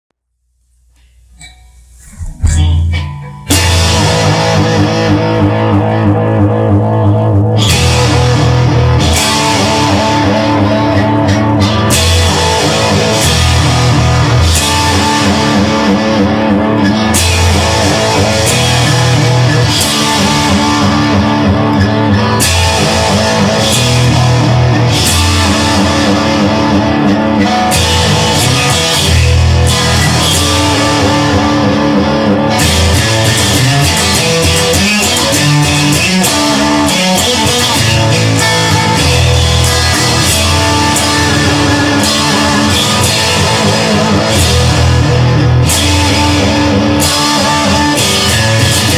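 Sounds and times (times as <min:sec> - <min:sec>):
drum kit: 0:01.4 - 0:05.3
rock guitar: 0:01.4 - 0:48.9.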